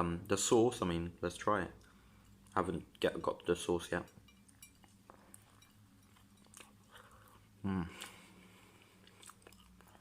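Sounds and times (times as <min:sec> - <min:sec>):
person chewing a burger: 0:04.5 - 0:10.0
person humming: 0:07.6 - 0:08.1.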